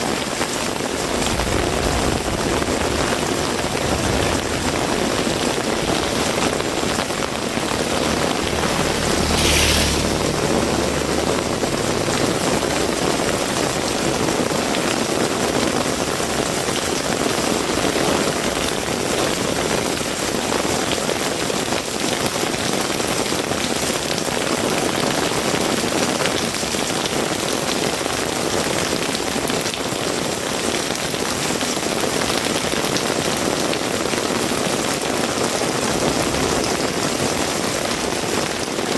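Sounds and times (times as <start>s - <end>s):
heavy rain falling: 0.0s - 38.9s
short low rumble: 1.0s - 14.8s
brief high-pitched hiss: 8.9s - 10.4s.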